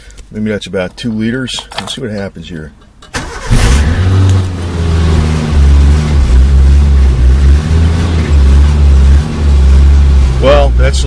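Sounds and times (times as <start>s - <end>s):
car engine starting and running: 3.0s - 11.0s.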